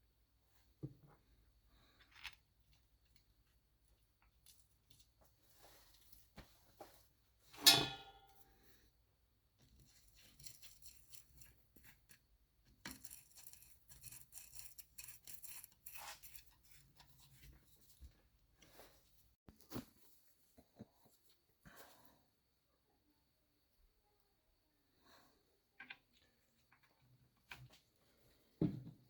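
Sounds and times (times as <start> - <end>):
handling small parts: 1.6 - 6.4, 9.6 - 18.2
metal part clinking: 7.6 - 8.3.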